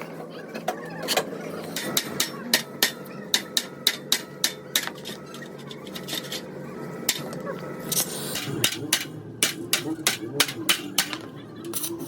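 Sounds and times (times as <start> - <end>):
hammer tapping sheet metal: 8.4 - 11.2.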